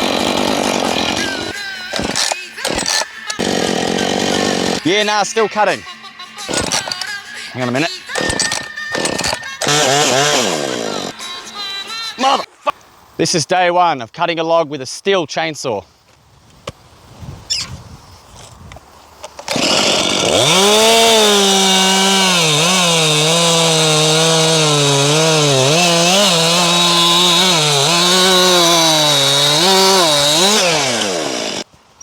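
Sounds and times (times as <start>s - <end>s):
chainsaw cutting through log: 0.0s - 5.1s, 6.5s - 7.1s, 7.7s - 11.2s, 19.5s - 31.7s.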